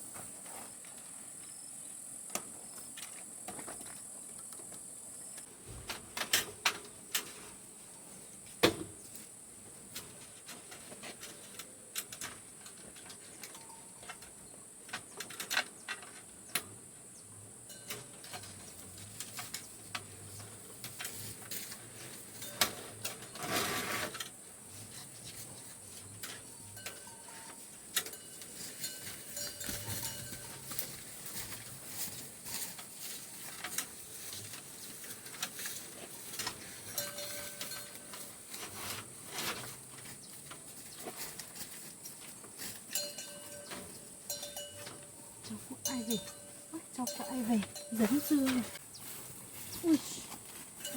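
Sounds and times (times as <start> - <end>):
crickets droning: 0.0 - 7.7, 11.5 - 50.9
rustling noise: 18.2 - 50.9.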